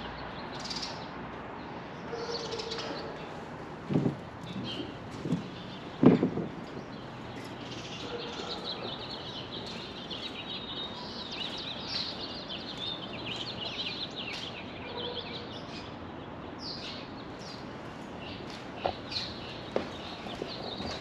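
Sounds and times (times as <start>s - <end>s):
steady background noise: 0.0s - 21.0s
small birds chirping: 4.4s - 21.0s.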